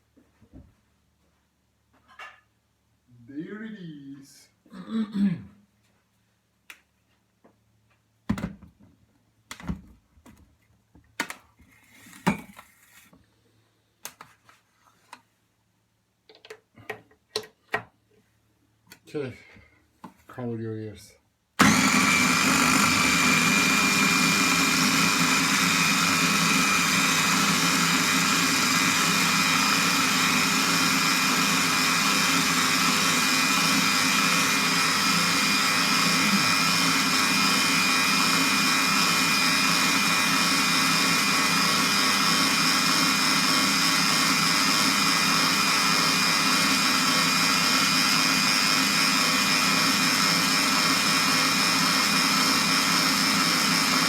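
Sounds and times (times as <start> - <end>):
electric blender running: 21.6 - 54.0.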